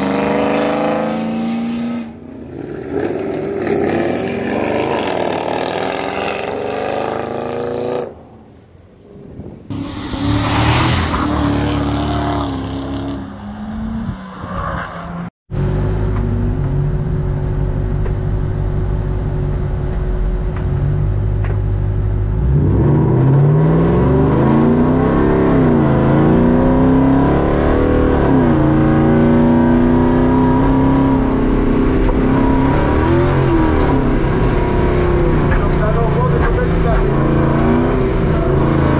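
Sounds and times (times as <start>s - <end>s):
van engine idling and revving: 15.5s - 38.9s.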